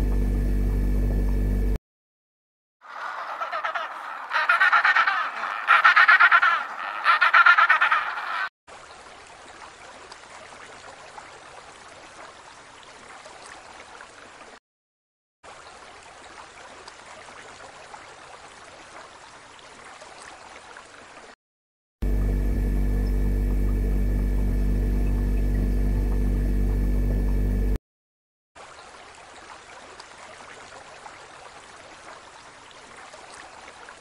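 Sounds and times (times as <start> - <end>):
penguin braying: 2.8 - 8.5.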